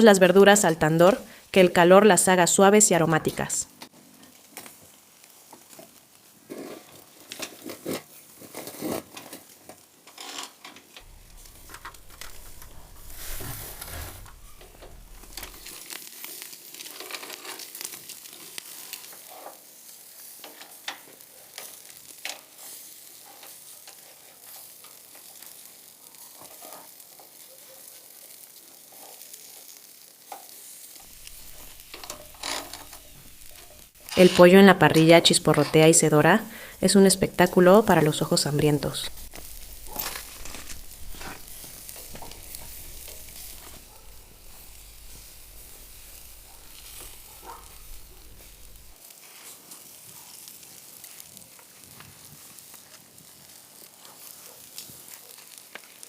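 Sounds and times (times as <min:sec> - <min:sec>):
food sizzling over a fire: 0:00.0 - 0:56.0
low rumble: 0:11.0 - 0:15.8, 0:31.1 - 0:34.1, 0:38.6 - 0:49.0.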